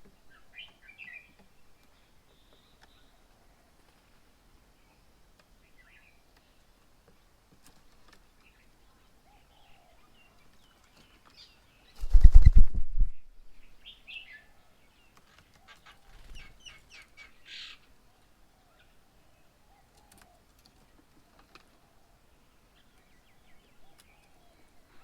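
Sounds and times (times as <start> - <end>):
bird wings flapping: 12.0 - 13.1.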